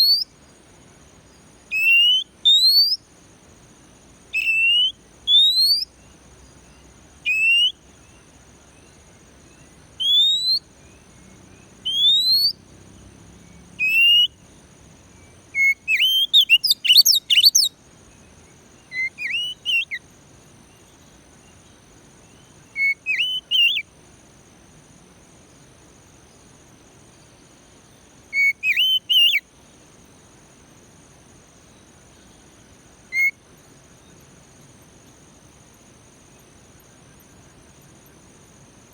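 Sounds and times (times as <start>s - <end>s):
bird singing whistles: 0.0s - 0.3s, 1.7s - 3.0s, 4.3s - 5.9s, 7.3s - 7.8s, 10.0s - 11.0s, 11.8s - 12.6s, 13.8s - 14.4s, 15.5s - 17.8s, 18.8s - 20.0s, 22.7s - 23.8s, 28.3s - 29.4s, 33.1s - 33.4s
faint high-pitched hum: 0.0s - 38.9s.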